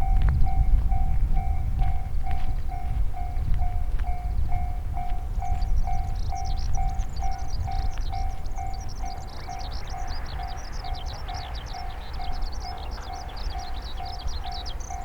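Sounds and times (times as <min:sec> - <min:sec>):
level-crossing alarm ringing: 0:00.0 - 0:15.0
passing train rumble: 0:00.0 - 0:15.0
small birds twittering: 0:03.4 - 0:15.0.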